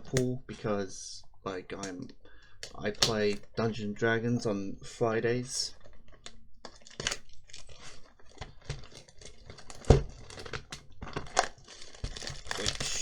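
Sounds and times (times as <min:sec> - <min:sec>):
plastic wrapping crinkling: 0:05.4 - 0:13.0.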